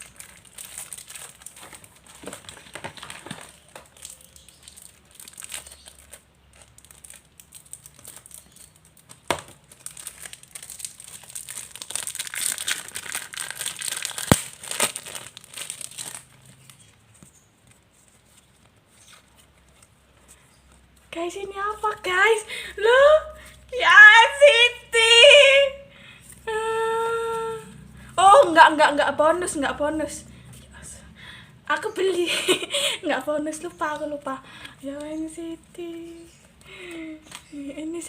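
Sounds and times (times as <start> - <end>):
wrapping tearing: 0.0 - 16.9
package wrapping crinkling: 0.0 - 20.2.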